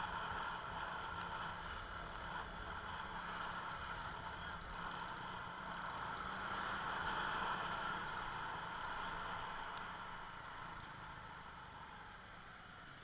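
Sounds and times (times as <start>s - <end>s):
motor vehicle running: 0.0s - 13.0s
road and wind noise: 0.0s - 13.0s.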